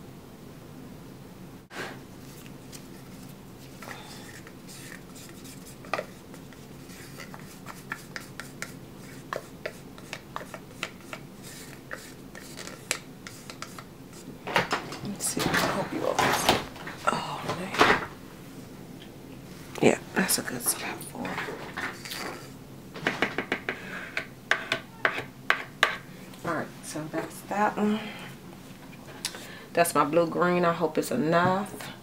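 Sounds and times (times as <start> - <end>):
steady low hum: 0.0 - 32.0
utensil scraping a container: 2.2 - 14.3.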